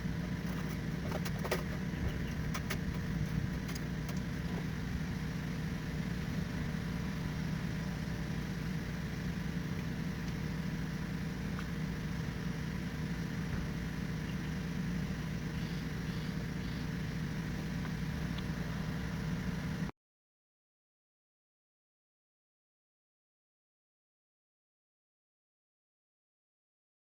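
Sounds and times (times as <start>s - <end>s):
low machine hum: 0.0s - 19.9s.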